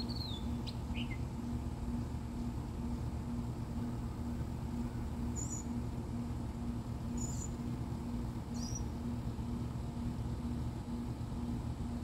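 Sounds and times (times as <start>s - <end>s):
songbird chirps: 0.0s - 1.6s, 4.5s - 5.9s, 7.0s - 9.2s
faint pulsing tone: 0.0s - 12.0s
low hum: 0.0s - 12.0s.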